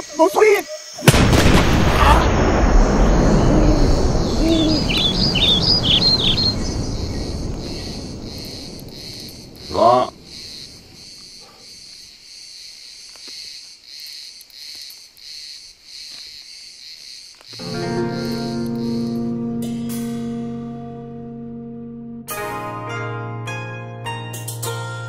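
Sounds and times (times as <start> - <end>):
crickets chirping: 0.0 - 20.4
low rumble: 1.4 - 10.7
pitched call: 3.4 - 6.6.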